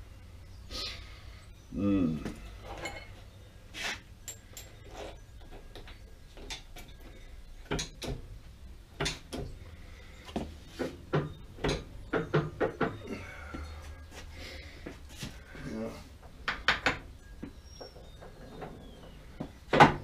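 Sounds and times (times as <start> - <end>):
metallic knocks and clunks: 7.6 - 8.3, 9.0 - 9.6, 10.8 - 13.1.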